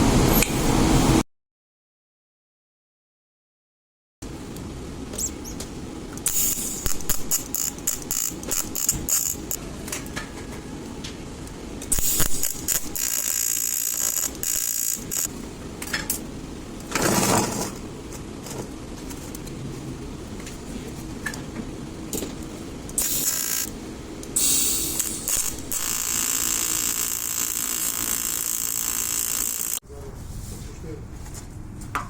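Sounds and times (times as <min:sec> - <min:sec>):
welding arc crackling and hissing: 0:06.2 - 0:09.6, 0:11.9 - 0:15.3, 0:22.9 - 0:23.7, 0:24.3 - 0:29.8.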